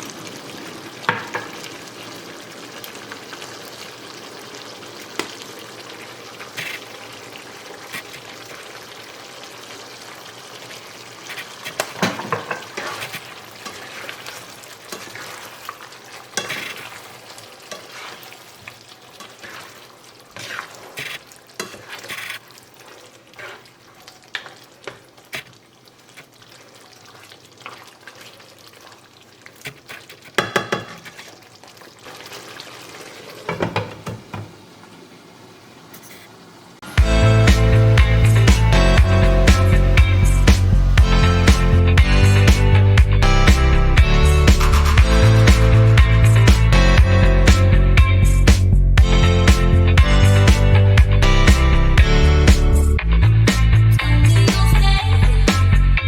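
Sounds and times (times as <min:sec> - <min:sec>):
meat sizzling in a pan: 0:00.0 - 0:33.6, 0:36.9 - 0:42.9
utensil scraping a pan: 0:11.2 - 0:17.1, 0:17.7 - 0:18.4, 0:19.2 - 0:22.4, 0:23.3 - 0:24.6.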